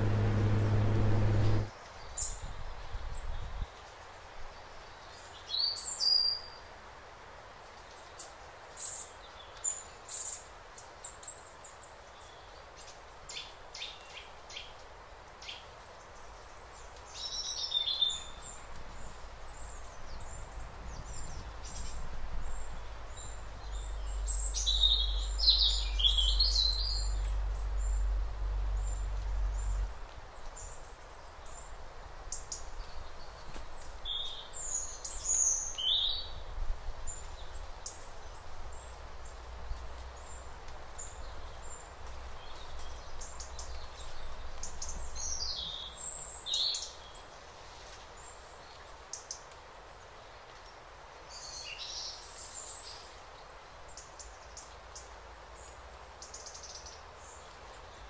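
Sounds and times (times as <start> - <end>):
low rumble: 0.0 - 1.7
songbirds chirping: 0.0 - 2.4, 7.7 - 58.0
steady background hiss: 0.0 - 58.0.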